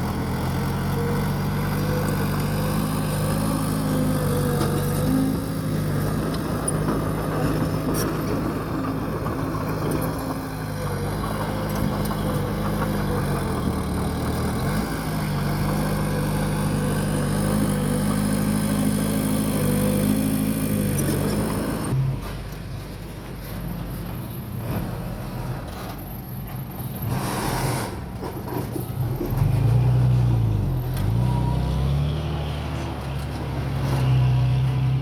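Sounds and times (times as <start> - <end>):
bulldozer diesel engine running: 0.0 - 27.1.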